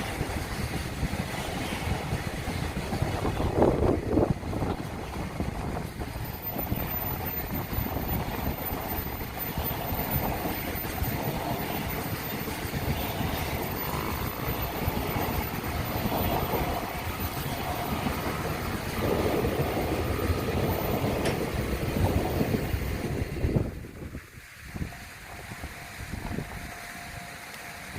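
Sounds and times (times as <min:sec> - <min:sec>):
freight train rumbling over rails: 0:00.0 - 0:27.9.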